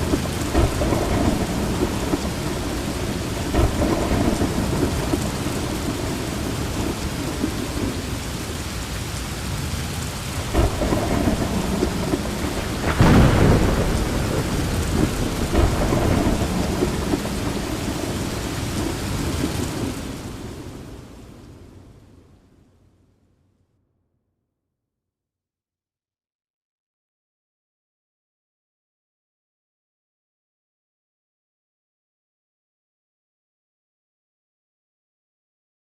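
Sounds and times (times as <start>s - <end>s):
thunder rumbling: 0.0s - 22.2s
heavy rain: 0.0s - 22.9s.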